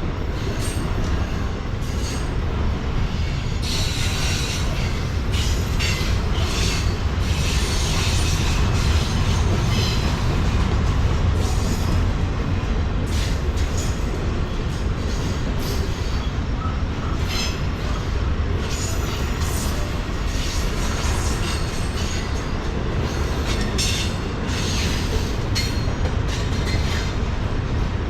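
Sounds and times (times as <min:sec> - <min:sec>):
freight train rumbling: 0:00.0 - 0:28.0
wheel and rail squeal: 0:00.3 - 0:02.4, 0:03.1 - 0:10.4, 0:14.7 - 0:27.2.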